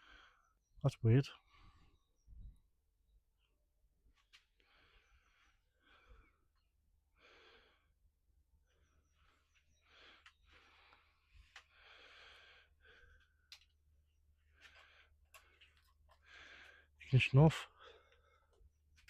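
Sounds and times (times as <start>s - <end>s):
small clicks: 13.4s - 13.8s.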